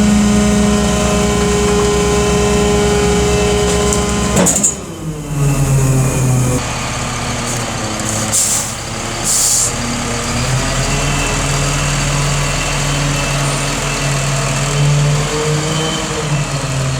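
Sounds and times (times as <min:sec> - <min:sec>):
diesel engine idling: 0:00.0 - 0:15.3
air release hisses: 0:07.5 - 0:09.8.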